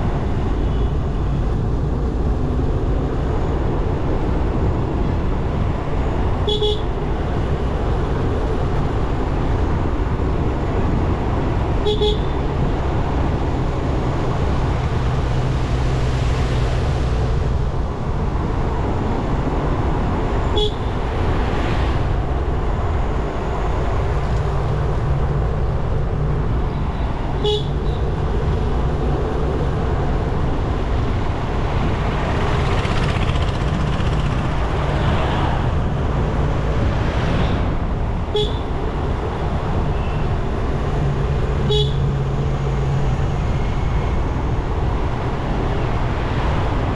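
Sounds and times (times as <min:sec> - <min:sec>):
wind and road noise: 0:00.0 - 0:46.9
motorcycle engine running: 0:32.6 - 0:34.7.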